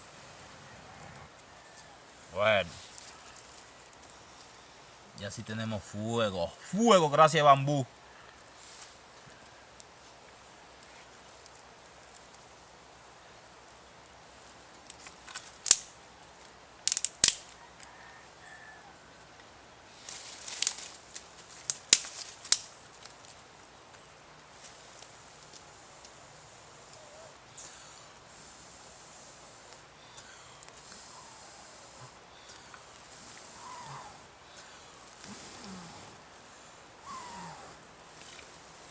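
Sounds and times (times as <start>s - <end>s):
campfire crackling: 0.0s - 17.6s, 19.3s - 38.9s
fire pops and cracks: 14.9s - 15.9s, 16.9s - 17.6s, 20.3s - 23.2s
high hiss of fire: 24.6s - 34.3s.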